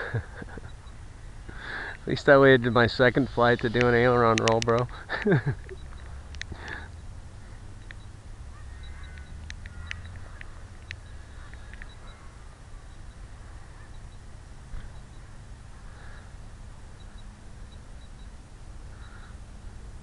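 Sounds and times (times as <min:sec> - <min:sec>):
faint high chirps: 0:05.6 - 0:19.4.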